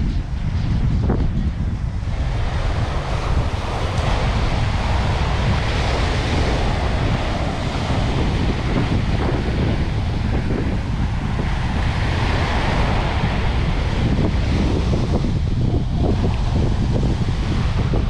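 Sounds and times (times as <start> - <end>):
wind buffeting microphone: 0.0 - 18.0
surf washing onto beach: 1.8 - 18.0.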